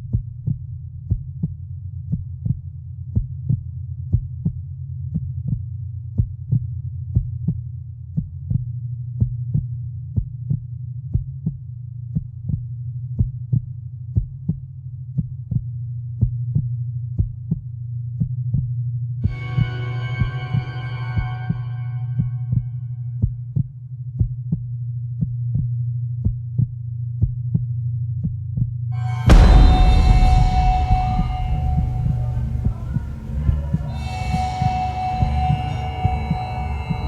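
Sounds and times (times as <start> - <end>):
low droning hum: 29.0 - 37.0
sharp heartbeat-like pulse: 29.0 - 37.0
sustained synth chord: 29.0 - 37.0.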